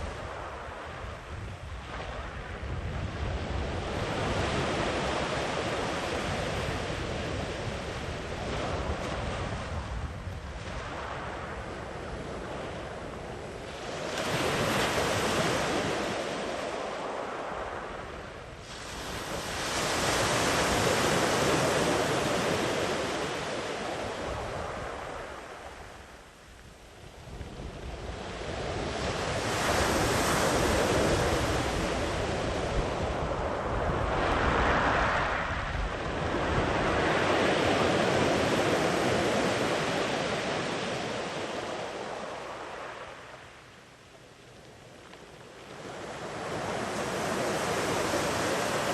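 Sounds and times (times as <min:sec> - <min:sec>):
wind on microphone: 0:00.0 - 0:43.6
sea waves breaking on a beach: 0:00.0 - 0:48.9.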